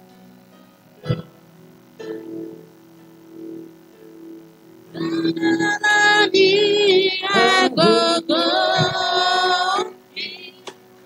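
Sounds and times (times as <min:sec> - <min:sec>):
high voice singing: 0:04.9 - 0:10.8.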